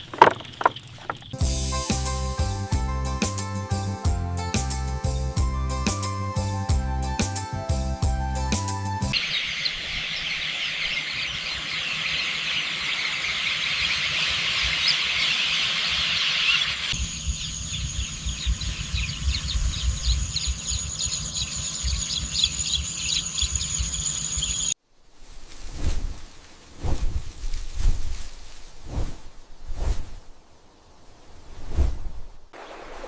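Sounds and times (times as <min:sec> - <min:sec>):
high-pitched chirping calls: 0:09.1 - 0:24.8.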